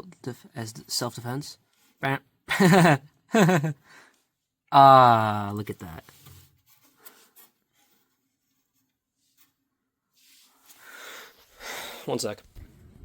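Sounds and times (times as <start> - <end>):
soft scraping rustle: 5.6 - 12.8.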